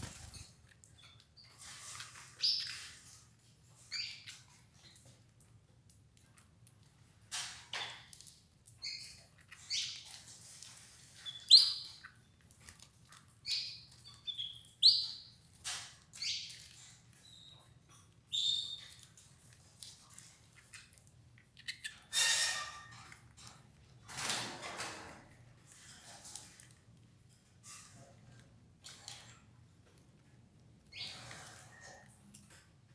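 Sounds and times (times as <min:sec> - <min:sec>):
canaries chirping: 0:00.0 - 0:05.1, 0:08.7 - 0:12.8, 0:13.4 - 0:23.2, 0:30.8 - 0:32.1.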